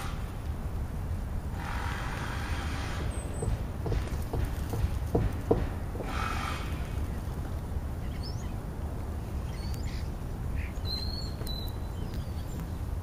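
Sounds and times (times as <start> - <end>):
birds chirping: 1.3 - 13.0
thin bird whistle: 10.8 - 12.6.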